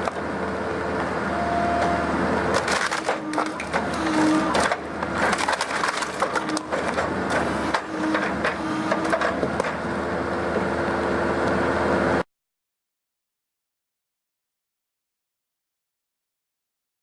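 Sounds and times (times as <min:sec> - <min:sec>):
logs cracking and splintering: 0:02.5 - 0:09.8.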